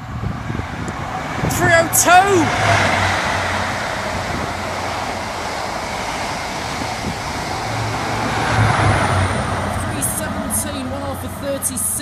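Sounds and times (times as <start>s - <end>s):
low engine hum: 0.0s - 12.0s
train passing at speed: 0.0s - 12.0s.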